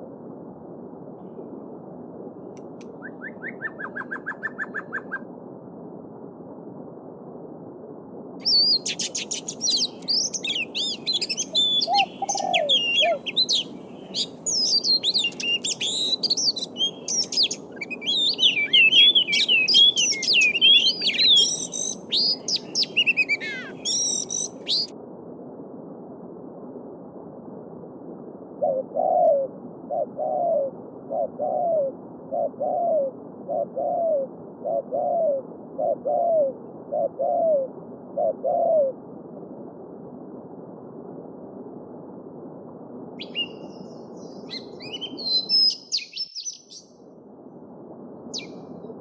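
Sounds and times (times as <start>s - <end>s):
songbirds singing: 3.0s - 5.2s, 8.4s - 24.9s, 43.2s - 47.0s, 48.3s - 49.0s.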